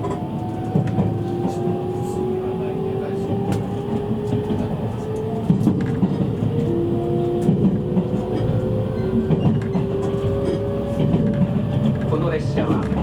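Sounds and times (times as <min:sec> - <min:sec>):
train running rumble: 0:00.0 - 0:13.0
wheels clicking over rails: 0:03.2 - 0:13.0.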